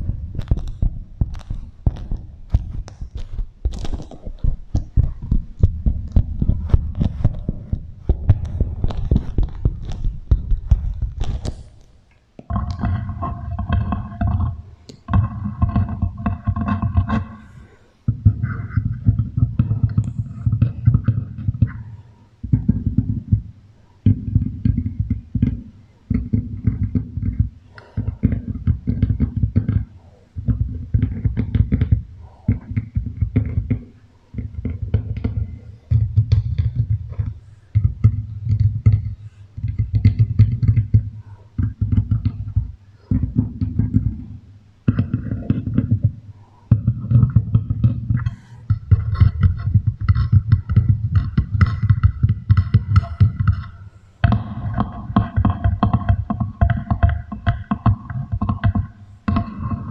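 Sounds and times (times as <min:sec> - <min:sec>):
wax wrap crinkling over microphone: 0:00.0 - 0:12.0.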